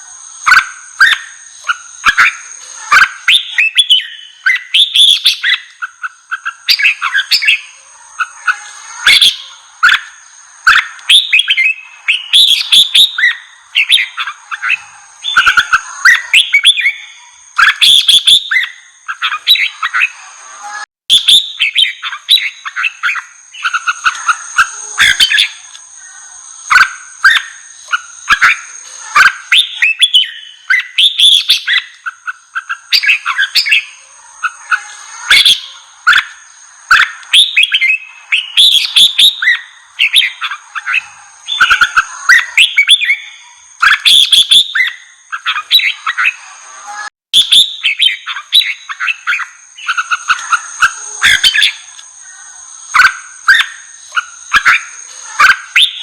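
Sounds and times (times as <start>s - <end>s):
bird chirping song: 0.0s - 56.0s.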